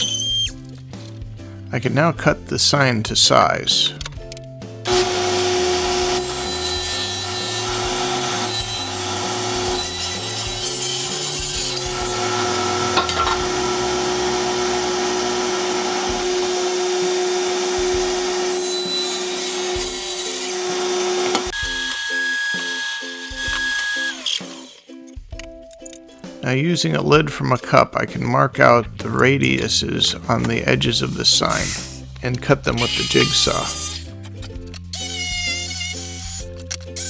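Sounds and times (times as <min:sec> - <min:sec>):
power saw cutting a board: 0:04.8 - 0:25.0, 0:29.5 - 0:37.0.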